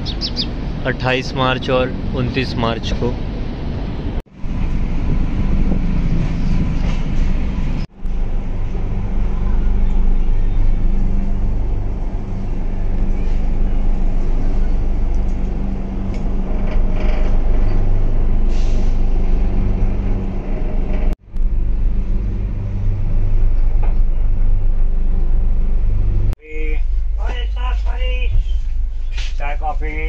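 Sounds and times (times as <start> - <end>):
train carriage rumbling on rails: 0.0 - 21.3.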